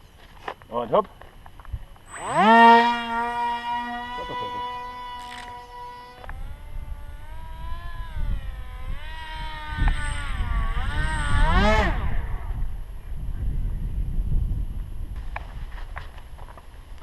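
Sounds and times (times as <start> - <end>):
model airplane electric motor whine: 1.5 - 14.1
wind rumble on microphone: 1.5 - 17.0.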